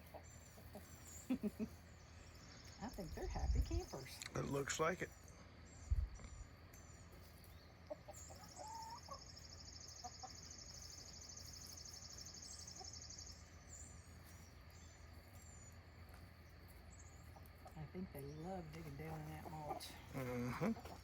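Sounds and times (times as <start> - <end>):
hens clucking: 0.0 - 2.0, 7.1 - 11.4, 18.8 - 21.0
high pulsed insect trill: 1.1 - 17.4.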